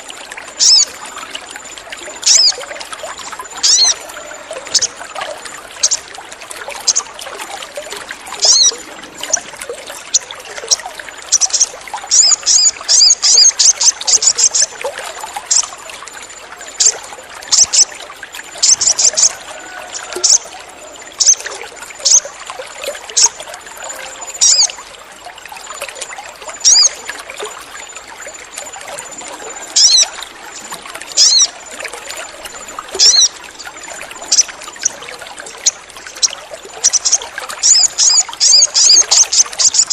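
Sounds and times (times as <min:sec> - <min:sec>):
bird chirping: 0:00.6 - 0:00.9, 0:03.6 - 0:04.0, 0:08.4 - 0:09.4, 0:10.1 - 0:14.7, 0:21.2 - 0:22.3, 0:26.6 - 0:27.0, 0:29.8 - 0:30.1, 0:31.2 - 0:31.5, 0:33.0 - 0:33.3, 0:35.6 - 0:39.9.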